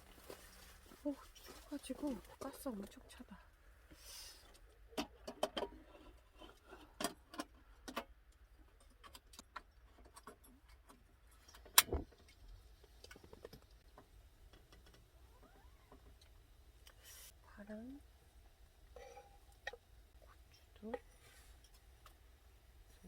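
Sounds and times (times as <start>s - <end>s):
cooking gear clicks and knocks: 4.5s - 15.1s.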